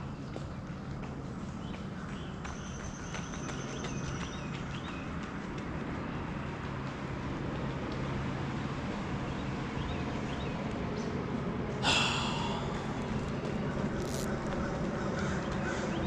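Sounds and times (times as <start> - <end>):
outdoor low hum: 0.0 - 16.0.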